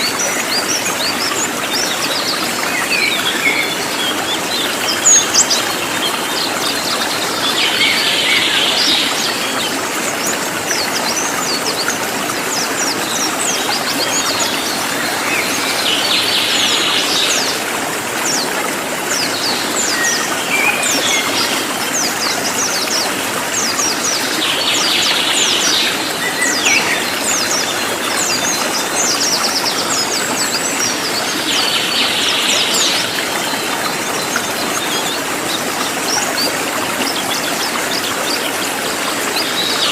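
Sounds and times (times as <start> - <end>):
flowing water rushing: 0.0 - 39.9
songbird singing: 23.5 - 35.6.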